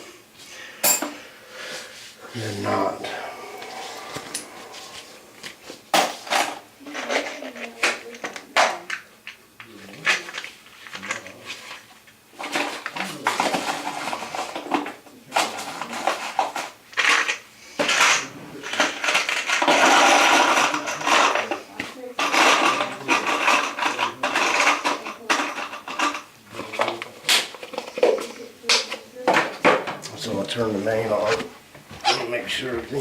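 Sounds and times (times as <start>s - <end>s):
hard objects clinking and scraping: 3.1s - 9.0s, 9.9s - 28.4s.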